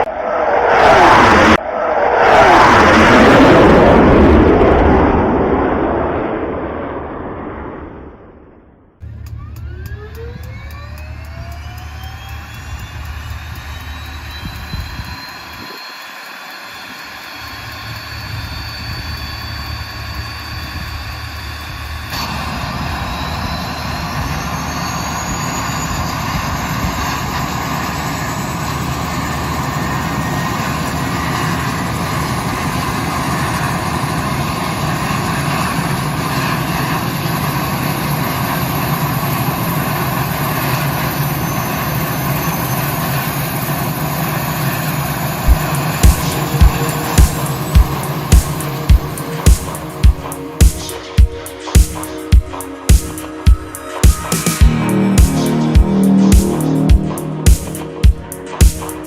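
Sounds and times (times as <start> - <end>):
rush of noise: 0.0 - 59.0
model plane electric motor whine: 9.1 - 50.5.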